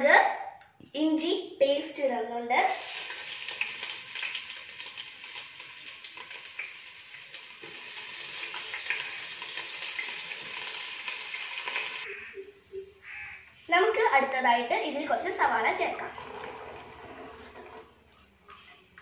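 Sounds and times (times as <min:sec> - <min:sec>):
paste sizzling in hot oil: 0:02.7 - 0:12.1.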